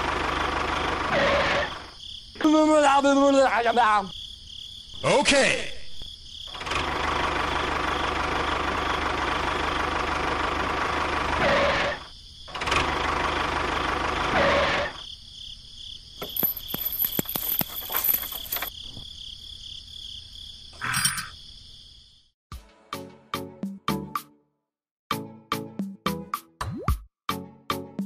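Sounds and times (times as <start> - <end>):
crickets chirping: 1.6 - 6.6, 12.0 - 12.6, 14.8 - 22.4
small metal chain rattling: 16.2 - 18.8.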